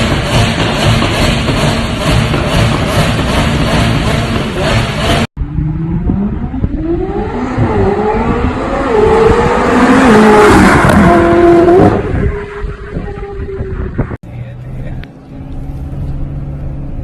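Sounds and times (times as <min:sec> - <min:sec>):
sports car accelerating hard: 0:03.6 - 0:14.2.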